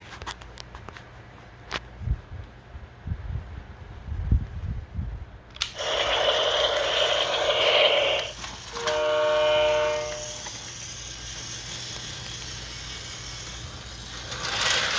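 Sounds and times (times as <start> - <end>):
toy train click: 5.5 - 14.9
steady hiss: 5.7 - 14.9
train horn tones: 6.7 - 10.7.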